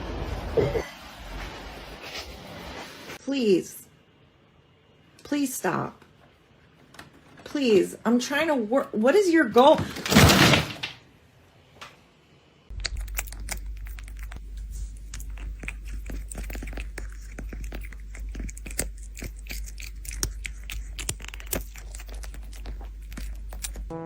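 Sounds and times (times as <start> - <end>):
low steady hum: 12.4 - 24.0
crunching and chewing: 12.7 - 23.9.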